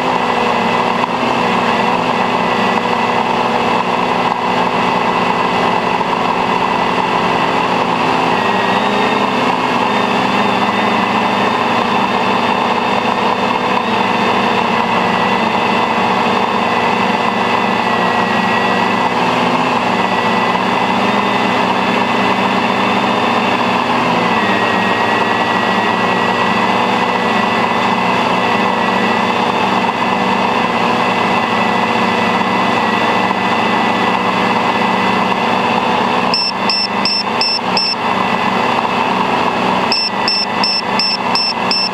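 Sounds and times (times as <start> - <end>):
drone motors whining: 36.2 - 41.9.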